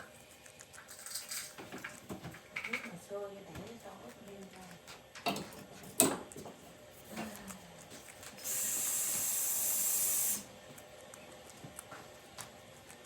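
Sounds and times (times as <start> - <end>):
steam hissing from cooking pot: 8.4 - 10.5.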